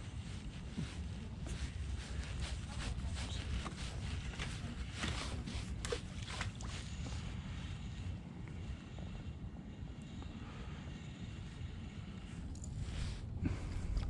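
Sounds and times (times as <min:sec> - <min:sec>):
paddle strokes splashing water: 0:01.8 - 0:07.4.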